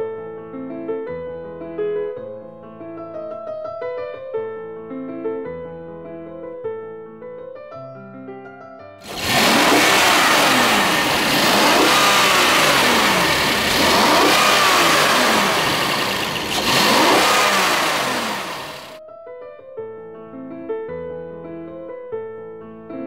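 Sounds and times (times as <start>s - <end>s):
car engine revving: 9.0s - 19.0s.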